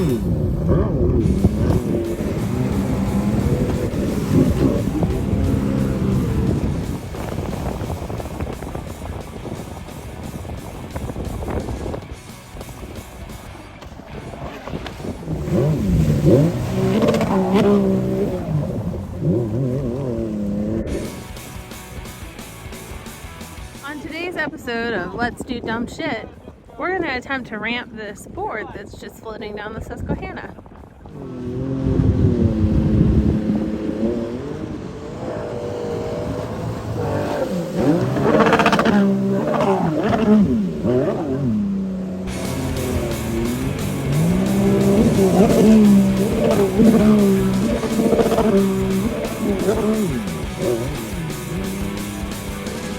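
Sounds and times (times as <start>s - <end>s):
engine revving hard: 0.0s - 7.5s, 14.4s - 21.4s, 31.2s - 52.9s.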